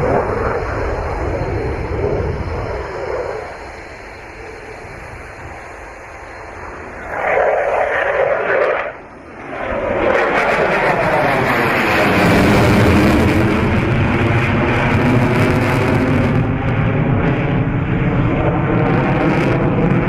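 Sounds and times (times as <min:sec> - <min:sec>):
rushing noise: 0:00.0 - 0:17.9
aircraft engine low rumble: 0:00.0 - 0:20.0.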